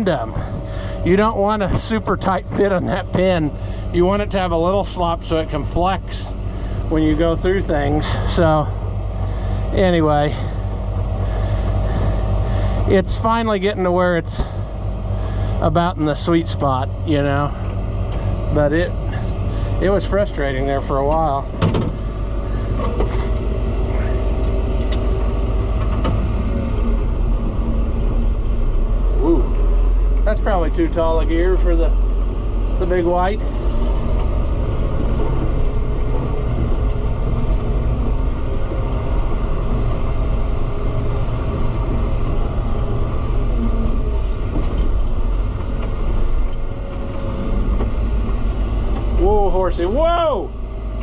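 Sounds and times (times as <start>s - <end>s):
tractor engine drone: 0.0s - 51.0s.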